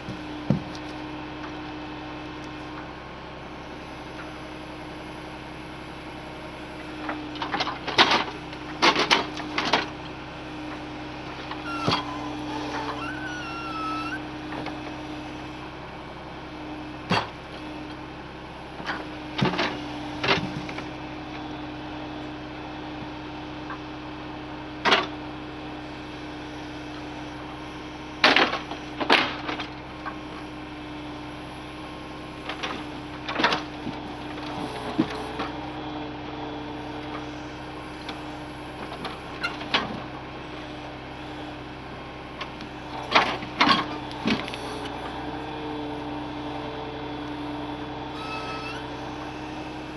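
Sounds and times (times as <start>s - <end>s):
wooden knocks and clunks: 0.0s - 0.9s
truck engine running: 0.0s - 49.9s.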